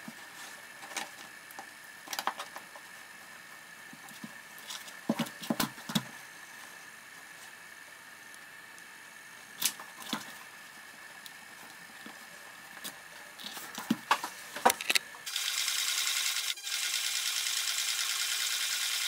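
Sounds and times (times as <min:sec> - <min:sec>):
sewing machine running fast: 0:15.3 - 0:19.0.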